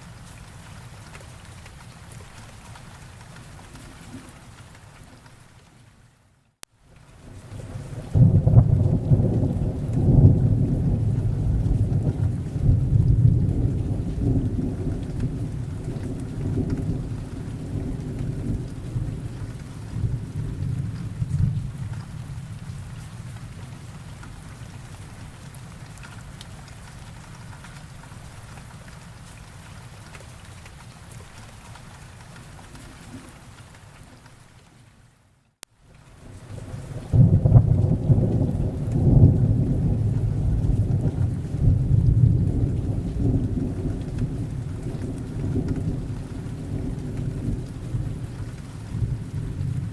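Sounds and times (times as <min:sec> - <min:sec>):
steady rain: 0:00.0 - 0:49.9
thunder rumbling: 0:07.4 - 0:24.2, 0:36.4 - 0:49.9.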